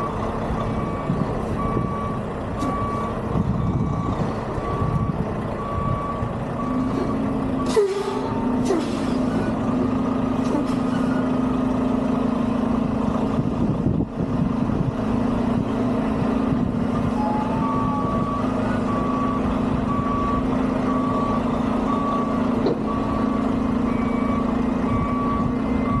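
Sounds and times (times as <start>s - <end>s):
diesel engine running: 0.0s - 26.0s
back-up alarm beeping: 17.2s - 26.0s.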